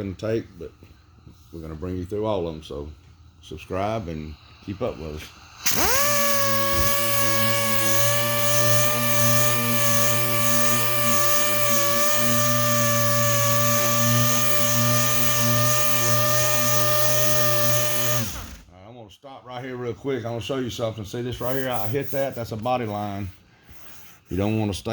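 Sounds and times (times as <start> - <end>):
orbital sander sanding metal: 5.6 - 18.4, 21.4 - 23.2.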